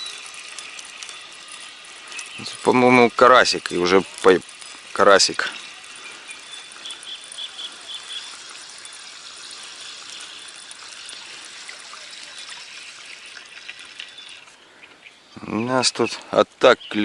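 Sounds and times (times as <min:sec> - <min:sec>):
steady high hiss: 0:00.0 - 0:17.0
crickets chirping: 0:03.7 - 0:15.3.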